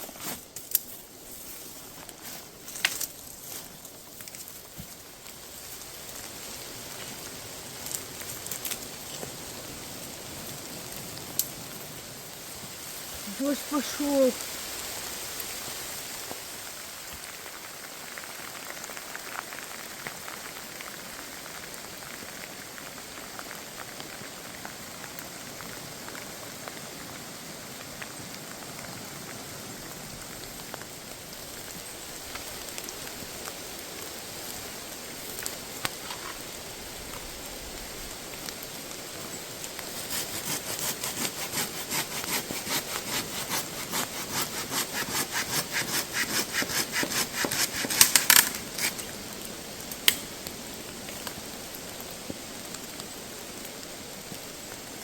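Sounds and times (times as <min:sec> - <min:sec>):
rain pattering: 0:00.4 - 0:55.0
hand saw cutting wood: 0:39.9 - 0:49.0.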